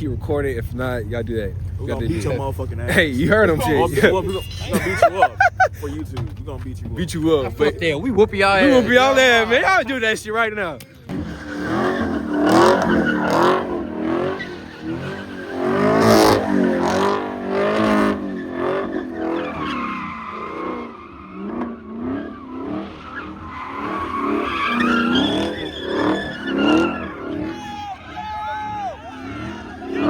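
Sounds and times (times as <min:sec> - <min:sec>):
tires squealing: 0:00.1 - 0:30.0
car engine revving hard: 0:11.1 - 0:27.7.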